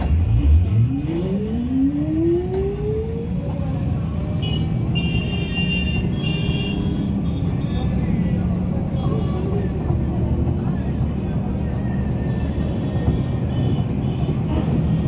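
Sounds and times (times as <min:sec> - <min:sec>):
vehicle engine accelerating: 0:00.0 - 0:04.3
road traffic: 0:00.0 - 0:15.0.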